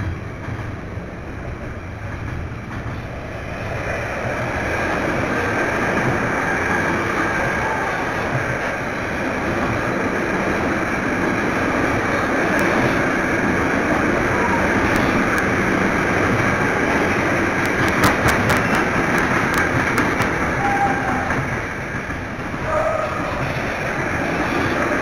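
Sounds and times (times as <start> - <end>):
freight train wheels rumbling: 0.0 - 25.0
sharp clicks: 17.6 - 20.4.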